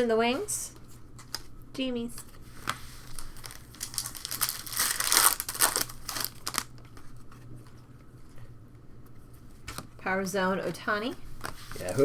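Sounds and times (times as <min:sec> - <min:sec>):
foil wrapper crinkling and tearing: 0:03.0 - 0:07.0.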